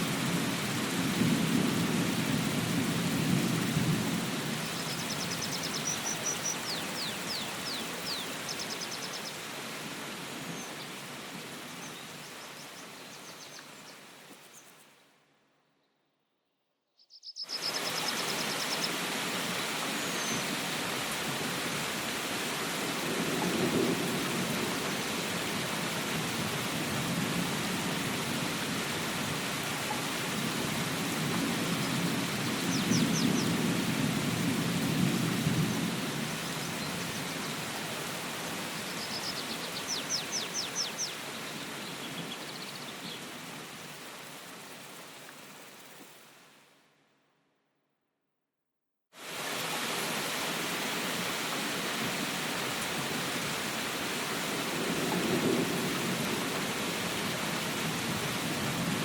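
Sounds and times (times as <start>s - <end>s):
steady rain: 0.0s - 15.2s, 17.4s - 47.0s, 49.2s - 59.0s
thunder rumbling: 54.6s - 59.0s.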